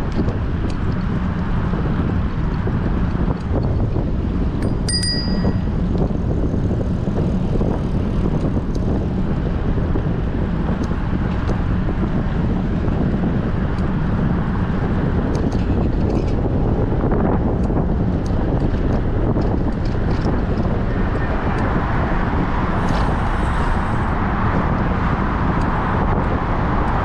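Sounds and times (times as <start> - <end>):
wind buffeting microphone: 0.0 - 27.0
short high ring: 4.6 - 5.8.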